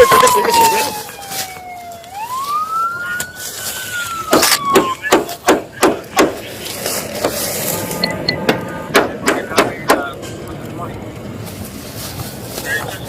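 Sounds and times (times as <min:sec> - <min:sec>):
wailing vehicle siren: 0:00.0 - 0:05.4, 0:06.5 - 0:09.2
sharp knocks: 0:04.3 - 0:06.4, 0:08.4 - 0:10.1.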